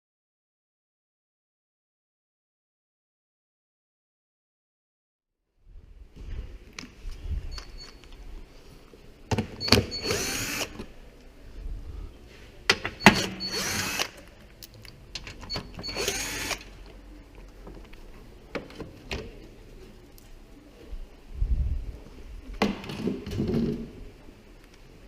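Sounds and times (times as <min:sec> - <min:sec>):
cordless screwdriver whining: 0:09.9 - 0:10.9, 0:13.0 - 0:14.2, 0:15.8 - 0:16.7.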